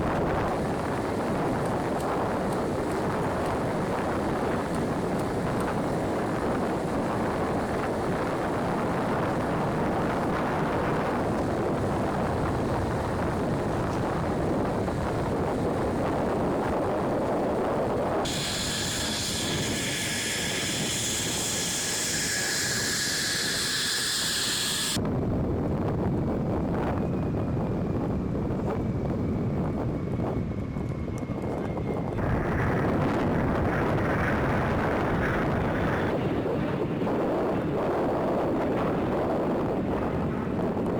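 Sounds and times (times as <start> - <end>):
jet engine roar: 0.0 - 25.0, 27.1 - 40.9
high-pitched jet whine: 18.2 - 25.0.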